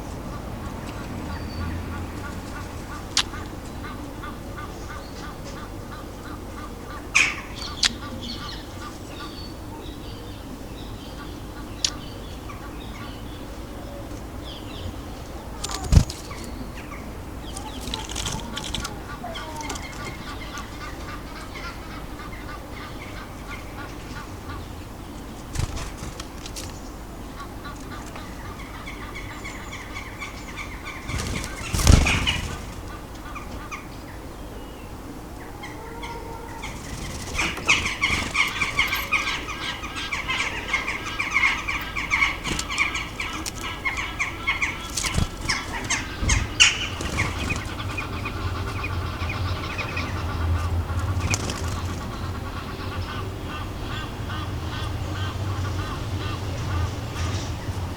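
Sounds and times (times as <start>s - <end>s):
bird calls and song: 0.0s - 57.9s
bird wingbeats flurry: 14.2s - 21.2s, 25.0s - 28.9s, 30.3s - 33.5s, 36.5s - 52.4s.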